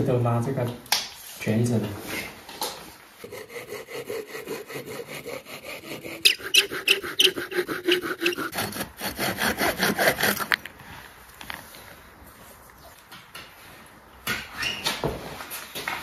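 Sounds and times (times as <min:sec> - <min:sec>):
hand saw cutting wood: 0:03.2 - 0:10.6.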